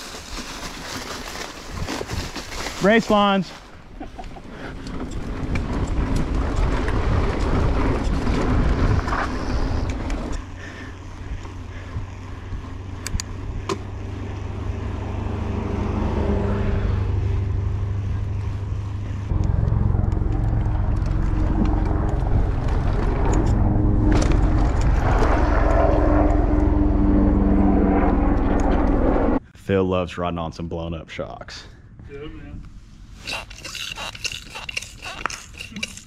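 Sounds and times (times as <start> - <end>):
bike tyre noise on trail: 0.0 - 26.8
wind rushing over microphone: 3.8 - 29.4.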